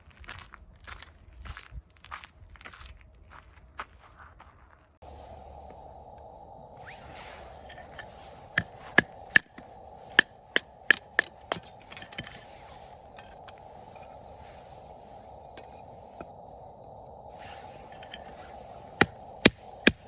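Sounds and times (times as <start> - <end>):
sharp wooden cracks: 18.2 - 20.0.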